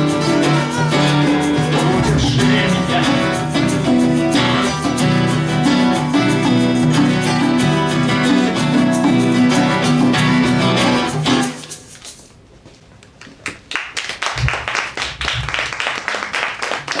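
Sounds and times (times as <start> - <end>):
band with strummed acoustic guitar: 0.0 - 12.4
audience applauding: 13.4 - 17.0.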